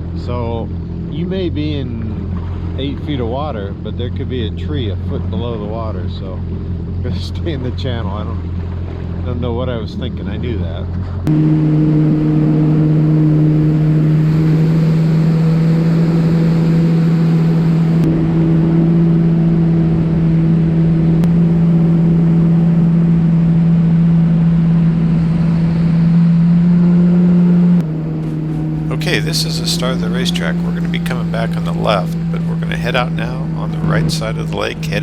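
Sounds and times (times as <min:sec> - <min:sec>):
watercraft engine running: 0:00.0 - 0:35.0
wind: 0:00.0 - 0:35.0
rushing water: 0:11.3 - 0:35.0.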